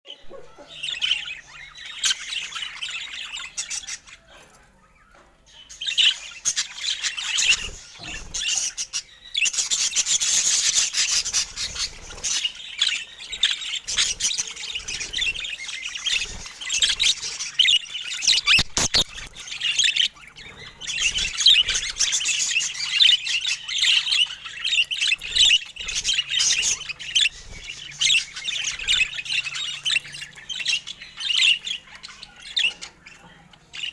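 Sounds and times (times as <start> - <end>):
budgerigar chattering: 9.8 - 33.9.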